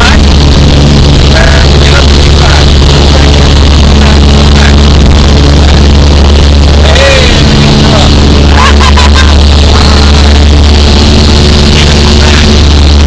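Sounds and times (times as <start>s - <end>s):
propeller aircraft engine droning: 0.0s - 13.0s.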